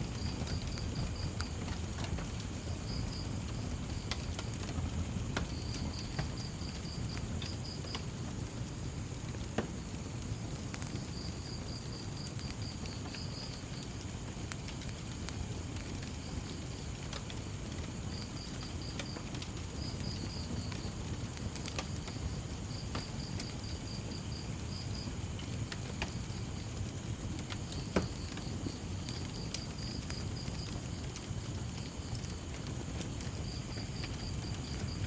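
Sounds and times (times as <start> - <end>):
crickets chirping: 0.0 - 35.0
low steady rumble: 0.0 - 35.0
wood fire crackling and popping: 0.0 - 35.0.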